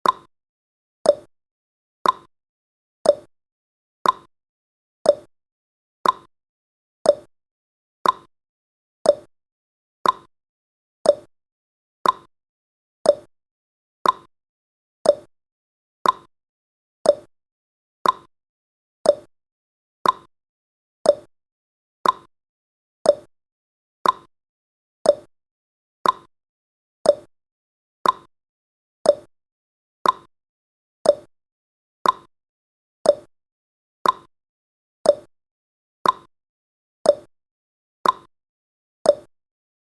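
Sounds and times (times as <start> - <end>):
countdown timer ticking: 5.1 - 5.3, 7.1 - 7.3, 9.1 - 9.3, 11.1 - 11.3, 13.1 - 13.3, 15.1 - 15.3, 17.1 - 17.3, 18.0 - 18.3, 19.1 - 19.3, 21.1 - 21.3, 23.1 - 23.3, 25.1 - 25.3, 26.0 - 26.3, 27.1 - 27.3, 28.0 - 28.3, 29.1 - 29.3, 30.0 - 30.3, 31.1 - 31.3, 32.0 - 32.3, 33.1 - 33.3, 34.0 - 34.3, 35.1 - 35.3, 36.0 - 36.3, 37.1 - 37.3, 38.0 - 38.3, 39.1 - 39.3.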